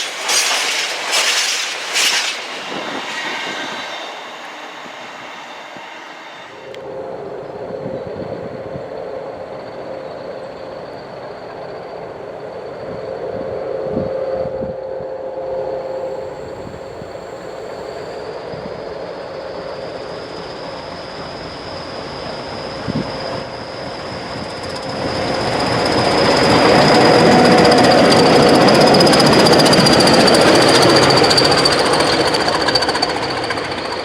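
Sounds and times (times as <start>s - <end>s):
train rattling clatter: 0.0s - 6.7s, 16.0s - 34.0s
train rails ringing: 0.0s - 13.4s, 15.8s - 34.0s.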